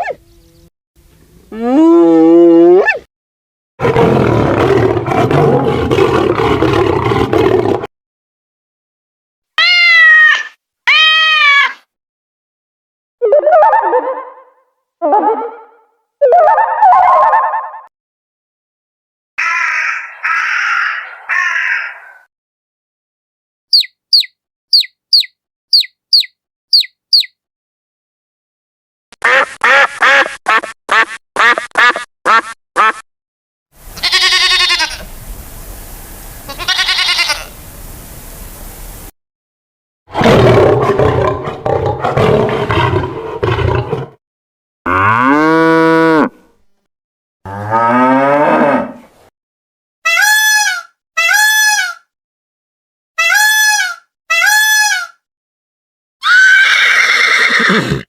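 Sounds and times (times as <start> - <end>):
quick high chirps: 23.7 - 27.3.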